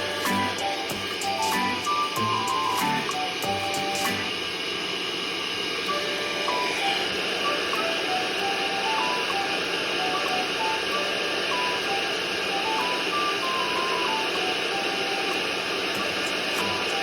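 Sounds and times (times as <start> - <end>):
plinking background music: 0.0 - 4.3
electric air blower rushing: 0.0 - 17.0.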